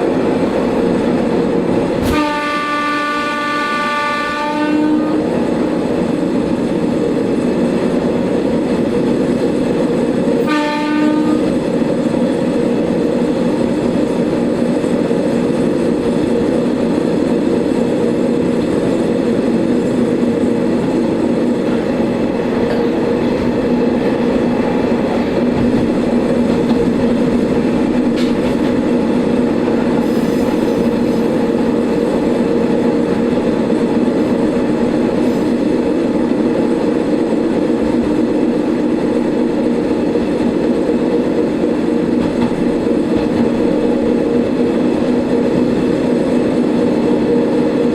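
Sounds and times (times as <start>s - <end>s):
railcar engine drone: 0.0s - 47.9s
wheel and rail noise: 11.2s - 47.9s.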